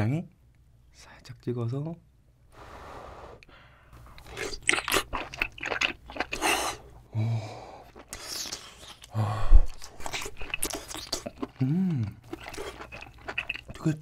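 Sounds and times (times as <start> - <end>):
wet chewing and mouth clicks: 4.1 - 6.9, 7.8 - 14.0.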